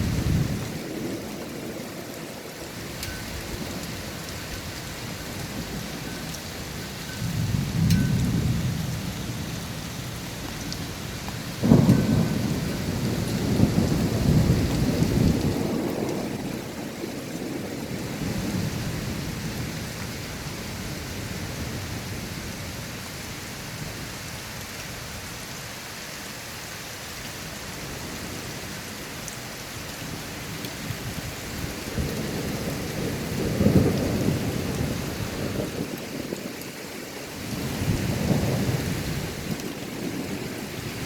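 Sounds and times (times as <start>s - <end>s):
rolling thunder: 0.0s - 2.2s, 7.1s - 19.9s, 30.9s - 36.5s, 37.5s - 41.0s
heavy rain: 0.0s - 41.0s.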